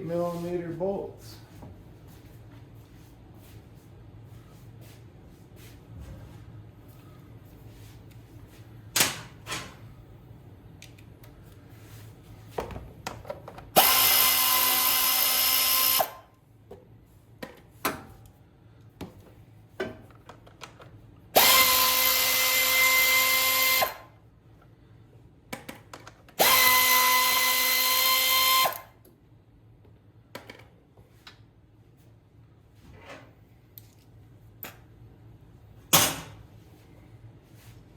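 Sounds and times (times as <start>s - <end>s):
drill motor whine: 13.8s - 16.2s, 21.4s - 24.1s, 26.4s - 28.8s.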